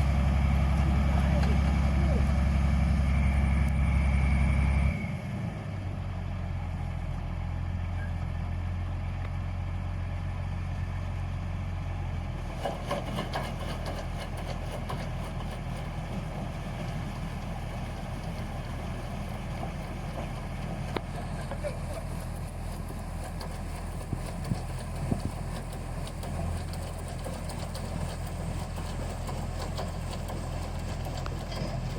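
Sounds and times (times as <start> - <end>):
harvesting machine engine running: 0.0 - 31.9
light rattling: 20.9 - 31.9.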